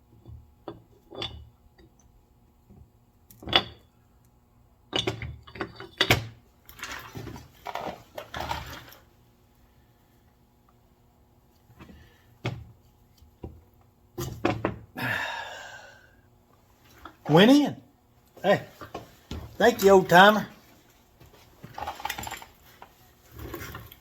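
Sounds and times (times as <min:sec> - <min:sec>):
metal parts clinking and knocking: 0:21.7 - 0:22.6.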